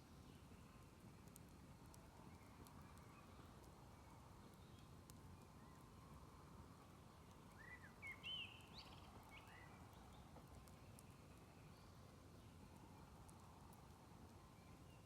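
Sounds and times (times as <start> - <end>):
faint outdoor hiss: 0.0 - 15.0
faint ticks: 1.2 - 3.8, 4.5 - 5.2, 8.6 - 11.5, 12.7 - 14.4.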